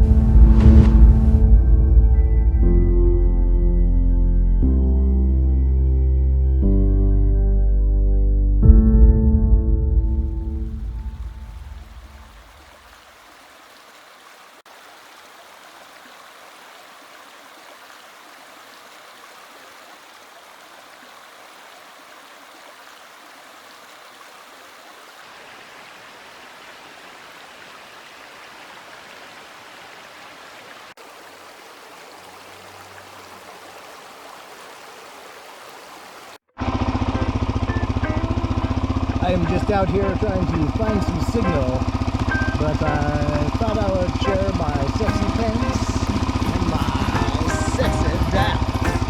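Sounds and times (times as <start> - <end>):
background music: 0.0 - 12.0, 37.1 - 49.0
stream water rushing: 10.4 - 49.0.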